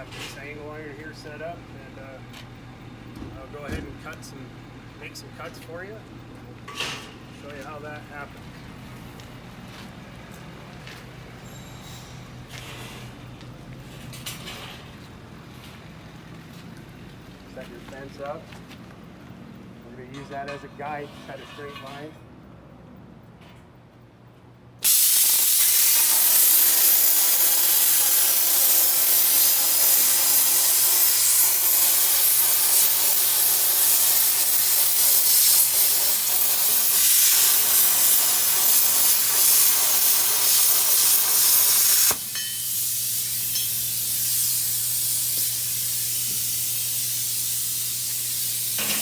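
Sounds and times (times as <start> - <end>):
low machine hum: 0.0 - 21.1
plasma cutter arc hissing: 24.8 - 49.0.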